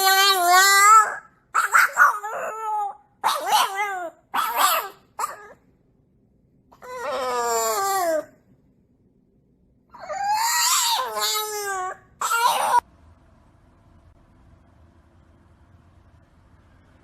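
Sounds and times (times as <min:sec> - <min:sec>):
dog howling and whining: 0:00.0 - 0:05.6, 0:06.7 - 0:08.4, 0:09.9 - 0:12.8.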